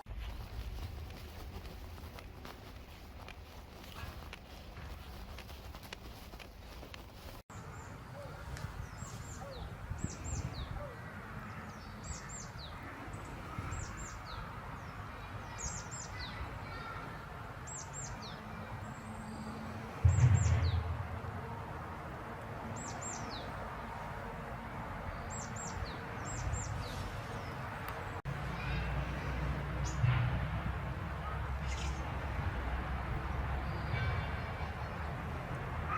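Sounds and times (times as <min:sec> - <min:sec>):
low rumble: 0:20.0 - 0:22.0.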